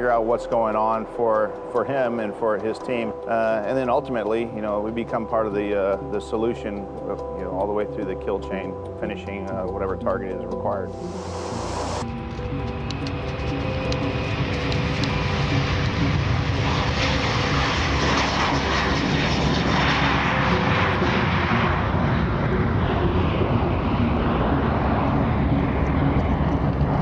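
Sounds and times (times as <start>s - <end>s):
jet engines passing overhead: 10.8s - 27.0s.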